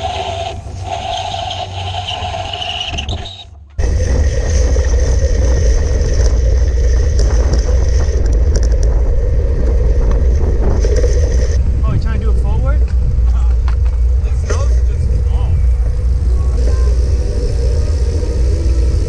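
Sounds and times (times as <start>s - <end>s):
rolling road noise: 0.0s - 19.0s
wind buffeting microphone: 3.8s - 19.0s.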